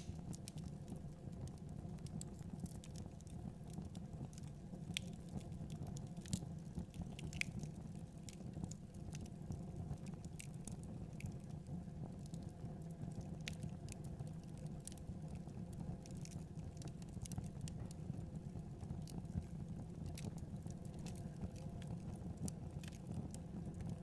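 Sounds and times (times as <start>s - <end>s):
sharp pops and snaps: 0.0s - 0.6s, 7.0s - 7.6s
low rumble of burning: 0.0s - 24.0s
wood fire crackling: 0.0s - 24.0s.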